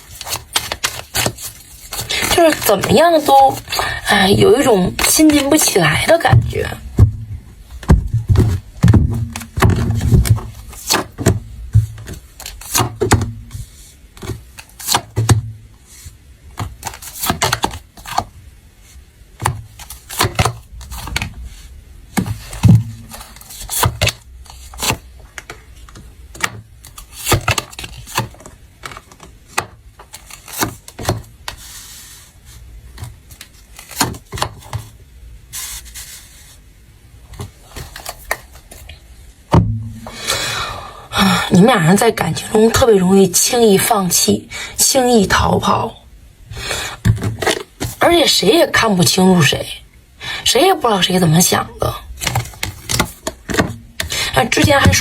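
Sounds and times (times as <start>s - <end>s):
low thumps: 6.3s - 10.3s, 39.5s - 40.1s.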